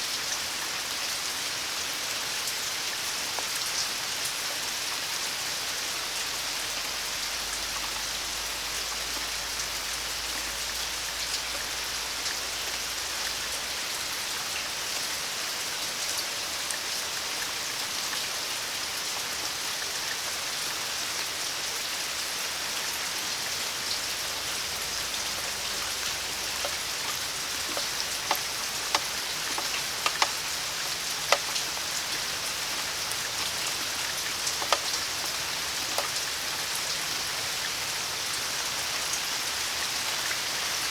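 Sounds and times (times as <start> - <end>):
steady rain falling: 0.0 - 40.9
sharp ticks of drops: 25.8 - 31.8, 33.4 - 36.2.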